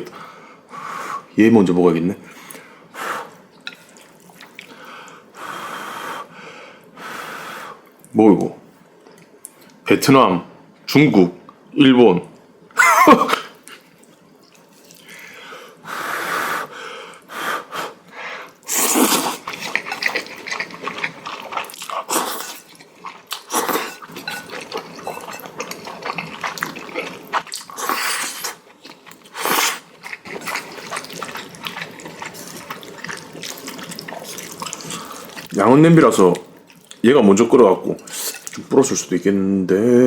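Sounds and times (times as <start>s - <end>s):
noodles being slurped: 18.7s - 37.0s, 38.0s - 38.9s
wet chewing: 19.0s - 37.0s, 37.9s - 38.8s.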